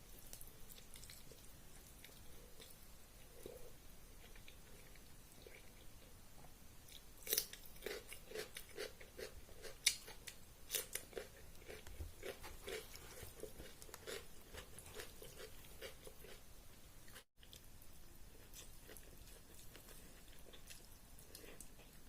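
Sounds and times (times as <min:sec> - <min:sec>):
close chewing with wet clicks: 0:00.1 - 0:03.4, 0:09.6 - 0:16.4, 0:18.4 - 0:22.0.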